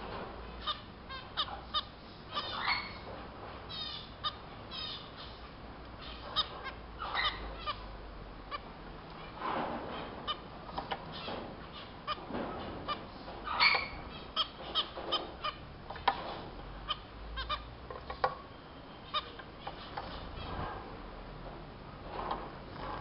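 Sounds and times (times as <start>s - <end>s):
finches calling: 0.6s - 3.1s, 3.7s - 8.6s, 10.2s - 15.7s, 16.8s - 20.6s.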